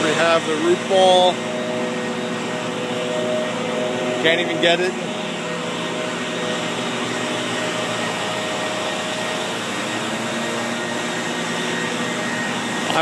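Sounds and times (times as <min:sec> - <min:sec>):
machine hissing and humming: 0:00.0 - 0:13.0.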